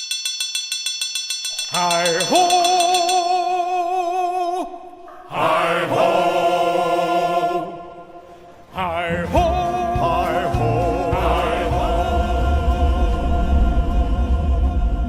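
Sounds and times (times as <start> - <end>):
choir singing long notes: 5.2 - 15.0
low rumble: 10.5 - 15.0.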